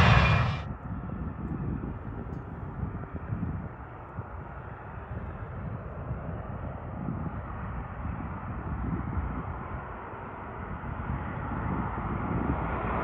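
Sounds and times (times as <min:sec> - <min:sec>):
jet engine rumble: 0:00.0 - 0:00.6.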